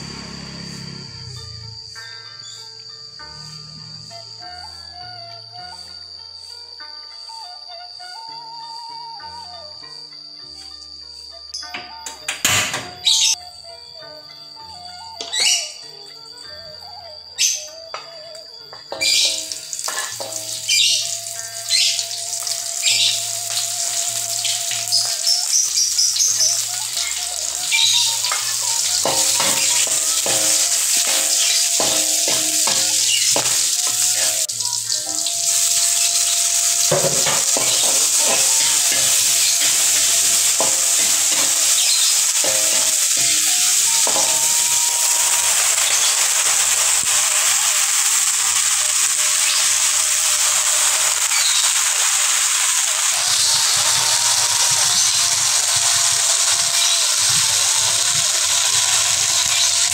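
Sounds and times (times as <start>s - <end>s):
food sizzling in hot oil: 0.0s - 13.4s, 14.6s - 15.9s, 16.5s - 59.9s
metal spatula stirring in wok: 28.2s - 34.5s, 35.1s - 46.1s.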